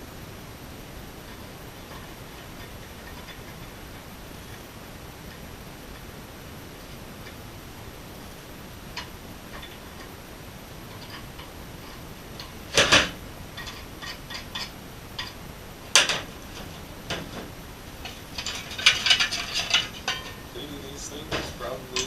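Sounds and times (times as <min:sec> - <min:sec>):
metal parts clattering: 0:09.0 - 0:10.1, 0:10.9 - 0:22.0
small metal clicks: 0:18.0 - 0:20.5
metal clinks: 0:18.0 - 0:22.0.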